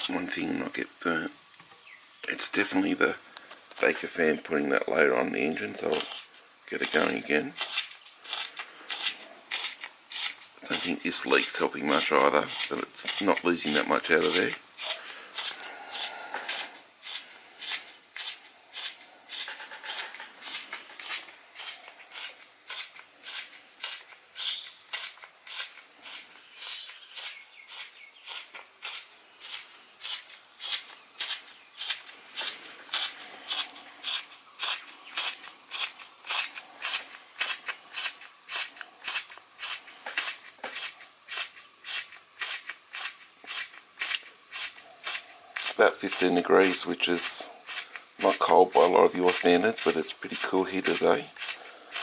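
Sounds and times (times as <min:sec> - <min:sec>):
model steam engine chuffing: 0:31.2 - 0:52.0.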